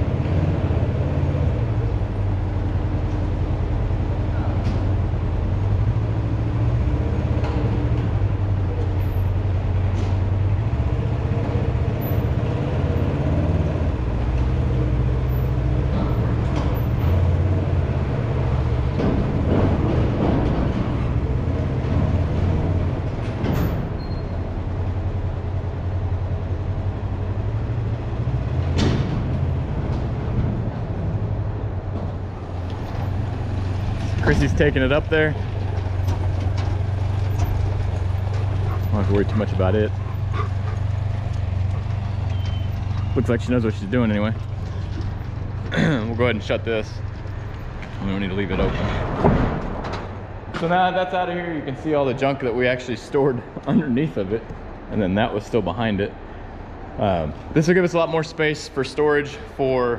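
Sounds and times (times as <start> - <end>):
farm equipment engine rumbling: 0.0 - 59.8
metal clanks and knocks: 18.8 - 24.1, 28.6 - 30.6, 31.9 - 46.3.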